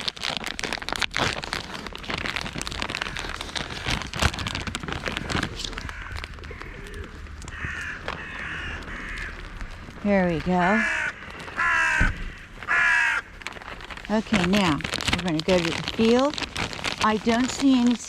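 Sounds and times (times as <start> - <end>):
crinkling handling noise: 0.0 - 18.0
crow cawing: 5.7 - 9.9, 10.6 - 13.7.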